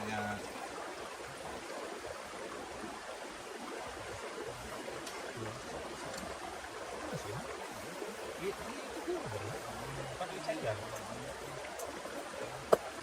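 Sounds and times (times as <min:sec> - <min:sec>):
rain falling steadily: 0:00.0 - 0:13.0
faint ticks: 0:10.9 - 0:12.0.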